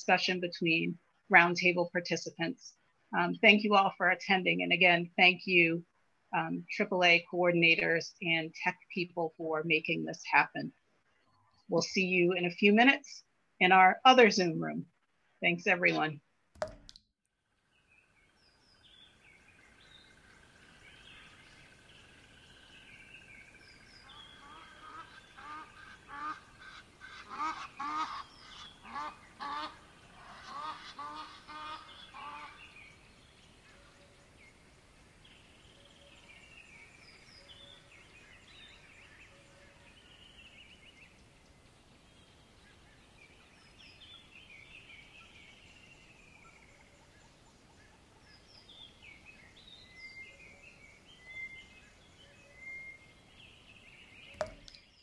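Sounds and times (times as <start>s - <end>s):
birds calling: 18.8s - 33.9s.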